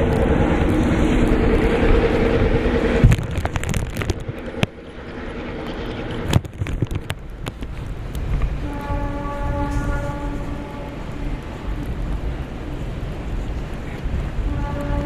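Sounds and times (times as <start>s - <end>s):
sharp clicks and knocks: 0.0s - 8.9s
train locomotive rumble: 0.0s - 15.0s.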